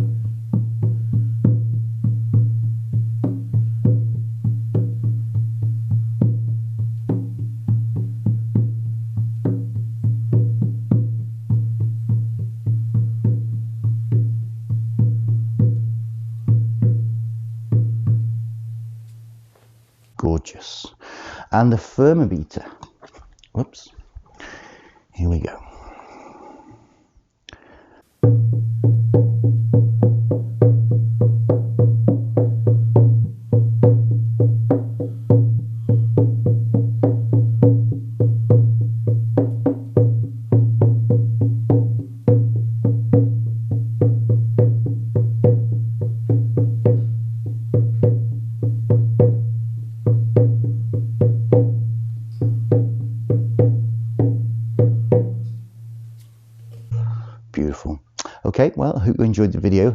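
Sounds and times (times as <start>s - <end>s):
frame drum beating: 0.0s - 18.5s, 28.2s - 55.6s.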